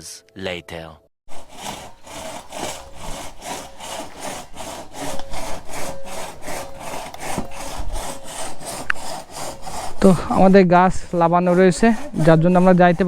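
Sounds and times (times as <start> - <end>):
hand saw cutting wood: 1.3 - 13.0.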